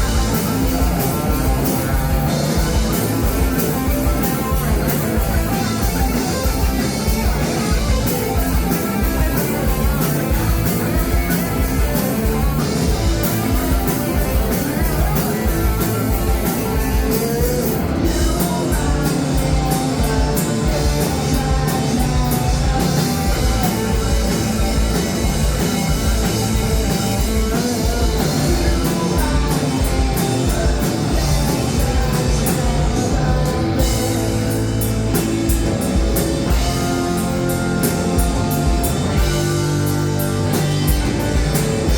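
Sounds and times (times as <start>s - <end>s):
bass guitar: 0.0s - 41.9s
drum kit beat: 0.0s - 41.9s
electric guitars: 0.0s - 41.9s
person singing: 8.0s - 34.7s.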